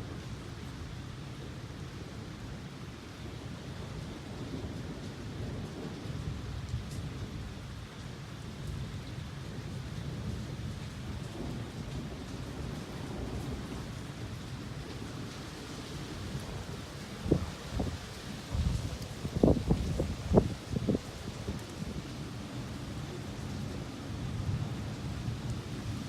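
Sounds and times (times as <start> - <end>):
rain falling: 0.0 - 26.0
thunder rumbling: 8.6 - 26.0.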